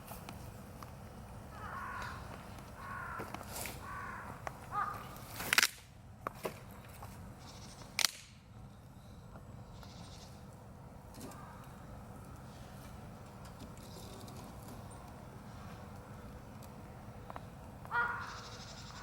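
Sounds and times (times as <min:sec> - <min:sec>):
bird calling: 0:01.5 - 0:05.3, 0:17.9 - 0:19.0.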